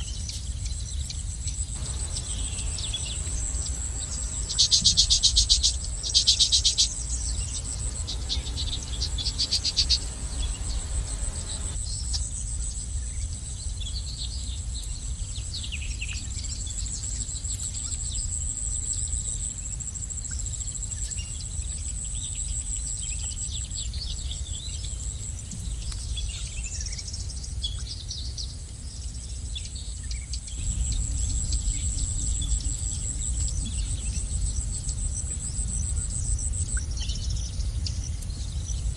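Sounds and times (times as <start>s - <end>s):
small birds chirping and trilling: 0.0s - 38.9s
high-pitched insect drone: 1.8s - 11.8s
low rumble: 1.8s - 11.8s, 30.5s - 38.9s.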